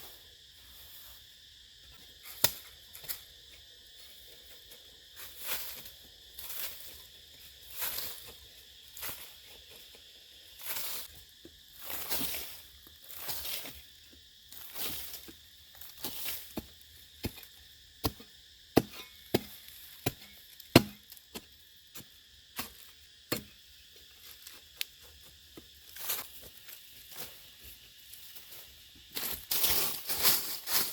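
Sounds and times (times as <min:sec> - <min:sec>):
high insect drone: 0:00.0 - 0:30.9
sharp chopping knocks: 0:18.8 - 0:21.0.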